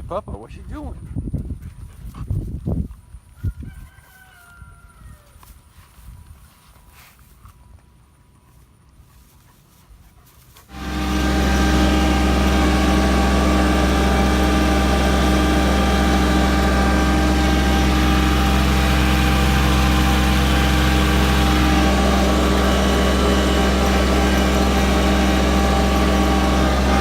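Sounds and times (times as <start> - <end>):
engine humming: 10.7 - 27.0.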